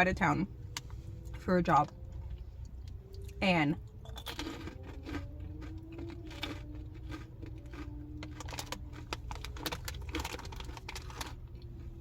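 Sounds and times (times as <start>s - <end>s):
steady low hum: 0.0s - 12.0s
crunchy snacks being eaten: 2.7s - 12.0s
wrappers crackling: 5.9s - 11.4s.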